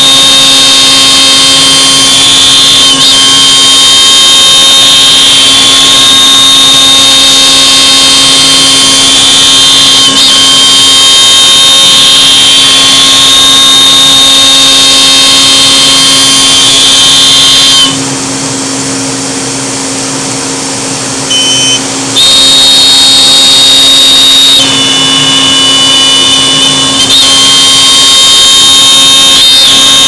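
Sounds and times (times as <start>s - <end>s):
router spindle whine: 0.0s - 30.0s.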